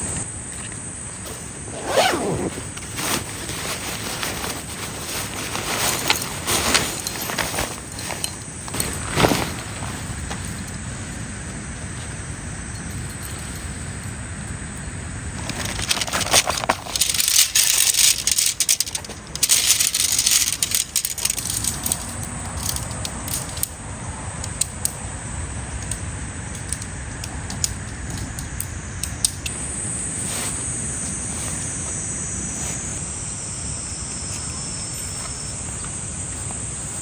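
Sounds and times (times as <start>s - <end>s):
high insect trill: 0.0s - 37.0s
material rustling and crinkling: 0.6s - 12.5s, 15.3s - 23.6s.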